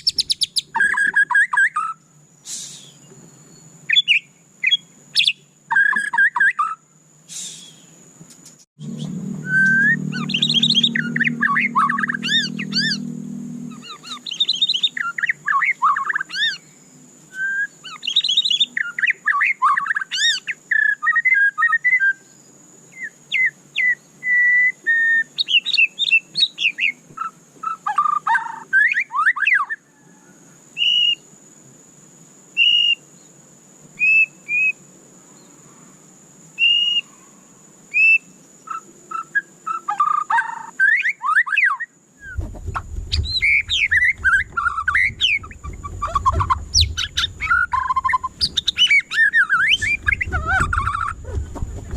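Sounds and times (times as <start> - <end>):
bird singing whistled phrases: 0.0 - 3.1, 3.9 - 8.0, 8.8 - 13.1, 13.7 - 22.3, 23.0 - 29.8, 32.6 - 33.0, 34.0 - 34.8, 36.6 - 37.1, 37.9 - 42.4, 43.2 - 51.4.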